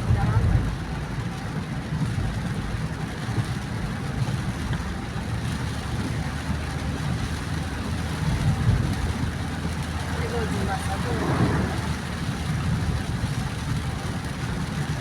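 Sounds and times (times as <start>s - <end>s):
car engine and road rumble: 0.0s - 15.0s
tyres hissing on wet pavement: 5.2s - 15.0s.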